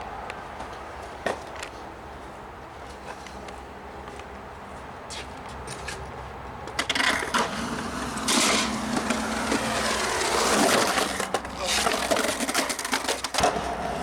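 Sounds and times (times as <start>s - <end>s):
skateboard wheels on rough concrete: 5.1s - 14.0s.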